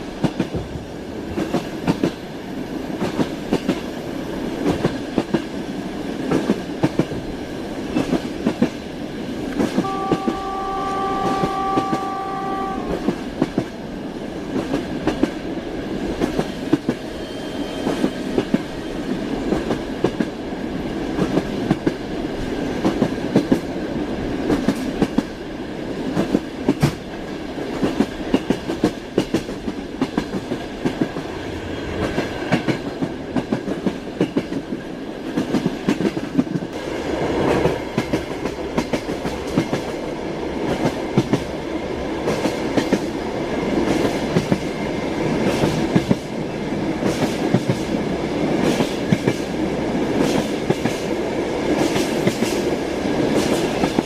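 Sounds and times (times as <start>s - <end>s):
rumble of moving train: 0.0s - 54.0s
train wheels knocking on rail joints: 9.6s - 13.8s, 26.1s - 31.3s, 32.0s - 36.8s, 37.5s - 40.0s, 40.6s - 41.5s, 47.0s - 54.0s.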